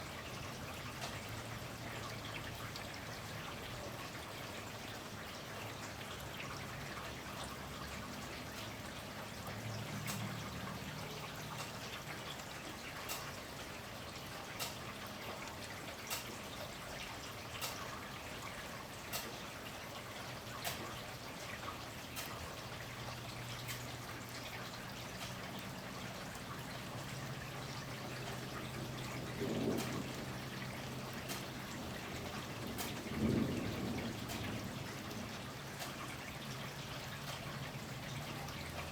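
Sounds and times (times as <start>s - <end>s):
steady rain: 0.0s - 38.9s
water drip: 0.0s - 38.9s
distant thunder rumbles: 28.0s - 35.9s.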